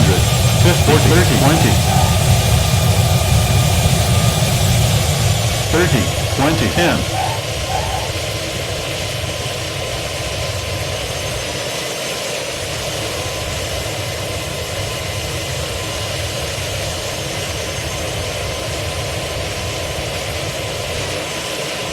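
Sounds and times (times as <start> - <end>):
jet engines roaring: 0.0 - 8.4
plane rolling on runway rumble: 0.0 - 8.4.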